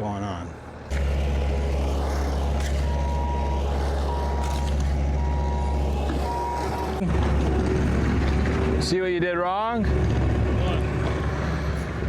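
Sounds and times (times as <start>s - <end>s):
heavy machine engine rumbling: 0.7s - 12.0s
backup alarm beeping: 2.4s - 7.0s.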